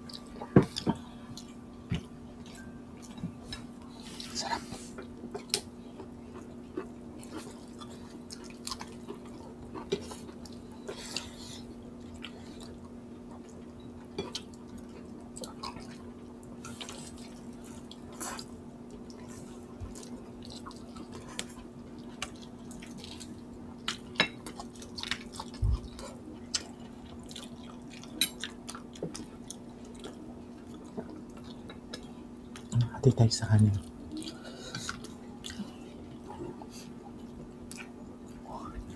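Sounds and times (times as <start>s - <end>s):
chewing and mouth smacks: 5.0s - 11.3s, 14.2s - 32.8s, 33.8s - 38.9s.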